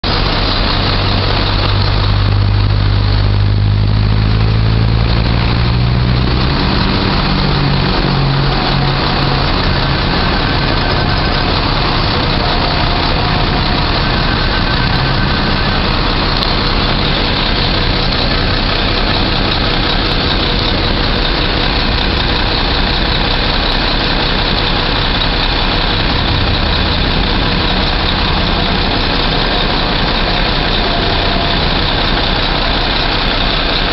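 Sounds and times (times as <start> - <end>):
truck engine idling: 0.0 - 33.9.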